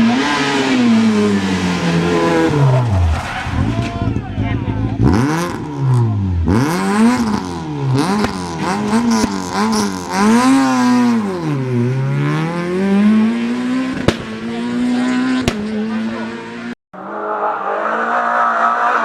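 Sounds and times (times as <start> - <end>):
rally car engine revving: 0.0 - 16.8
sharp crack: 8.0 - 9.6, 13.9 - 15.9.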